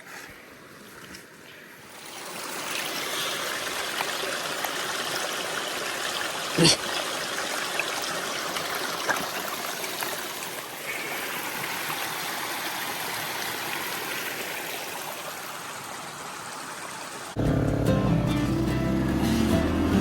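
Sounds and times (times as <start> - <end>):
stream water rushing: 1.8 - 17.4
music: 17.4 - 20.0.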